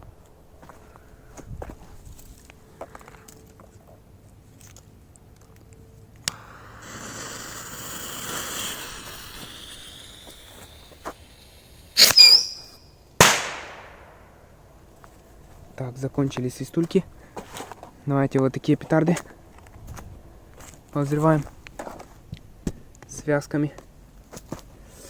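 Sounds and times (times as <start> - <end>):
firework rocket whistle: 6.3 - 13.4
firework bangs: 6.3 - 14.3.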